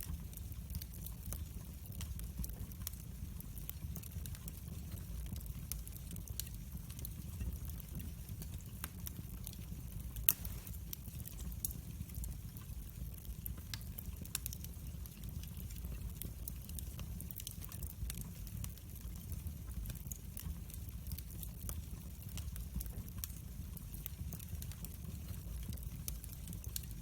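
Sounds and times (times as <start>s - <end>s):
wood fire crackling: 0.0s - 27.0s
sharp pops of fire: 10.2s - 11.8s.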